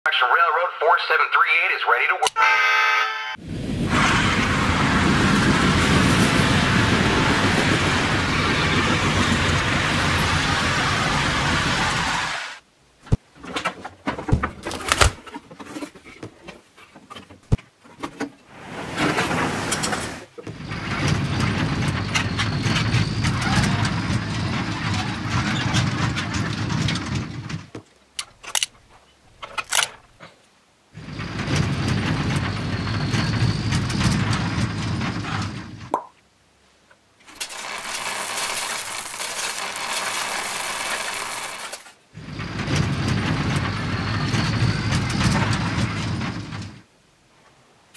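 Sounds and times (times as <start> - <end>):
clicks of toy being handled: 28.2 - 28.8, 29.4 - 30.0
toy vehicle motor running: 37.4 - 41.8.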